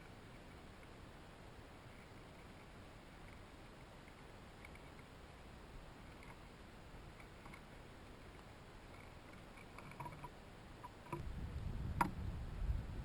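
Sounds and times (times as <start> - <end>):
low rumbling noise: 11.2 - 13.0.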